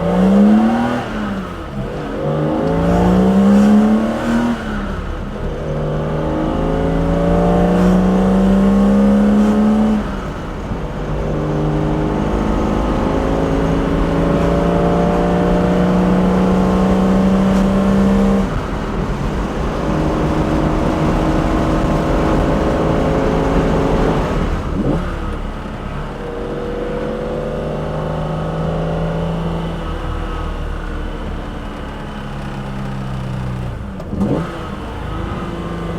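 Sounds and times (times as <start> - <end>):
car engine accelerating: 0.0 - 35.9.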